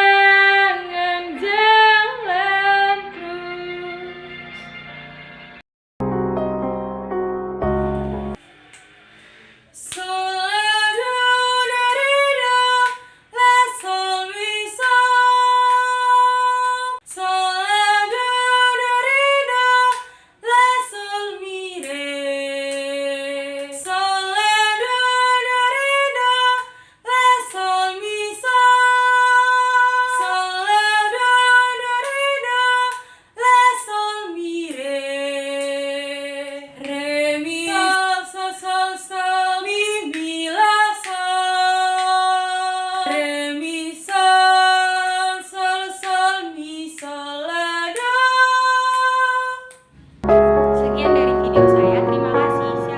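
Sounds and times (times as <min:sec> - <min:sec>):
woman singing unaccompanied: 0:00.0 - 0:04.2, 0:09.8 - 0:49.7
woman breathing: 0:13.0 - 0:13.3, 0:20.1 - 0:20.4, 0:26.7 - 0:27.0, 0:33.0 - 0:33.4.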